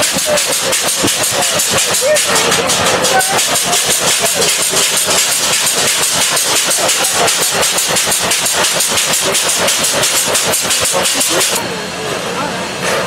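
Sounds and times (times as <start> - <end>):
train clattering past: 0.0 - 13.0.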